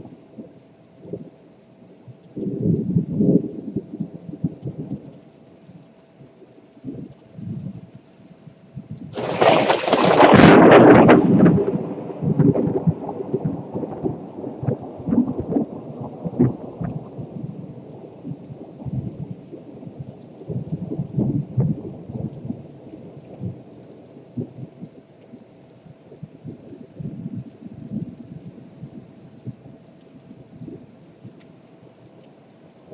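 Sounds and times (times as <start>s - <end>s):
rain falling: 0.0s - 32.9s
thunder rumbling: 8.8s - 25.0s
sharp thunder crack: 9.2s - 15.7s.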